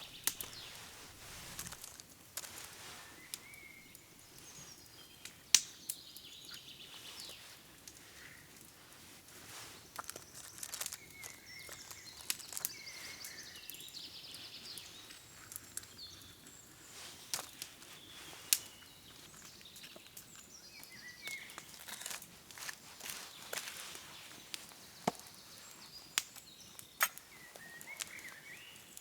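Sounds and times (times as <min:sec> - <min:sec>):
camp activity clicks and knocks: 0:00.0 - 0:04.5, 0:09.5 - 0:13.9, 0:14.7 - 0:28.4
songbirds chirping and trilling: 0:00.0 - 0:08.6, 0:10.0 - 0:29.0.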